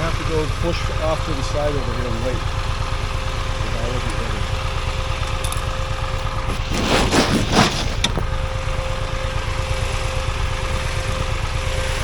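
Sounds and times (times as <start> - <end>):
motorcycle engine idling: 0.0 - 12.0
rustling noise: 6.2 - 8.4.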